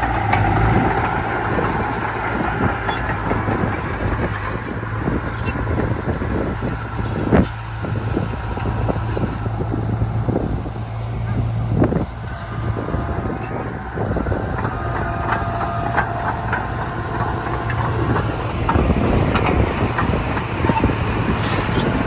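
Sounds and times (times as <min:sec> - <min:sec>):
bulldozer diesel engine running: 0:00.0 - 0:22.0
knocks and rattles: 0:11.3 - 0:22.0.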